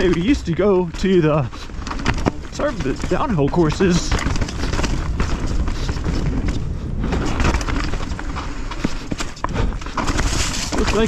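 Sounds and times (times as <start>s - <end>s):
bike clicks and knocks: 0.0s - 11.0s
bike tyres on dirt trail: 0.0s - 11.0s
wind rumble on microphone: 0.0s - 11.0s.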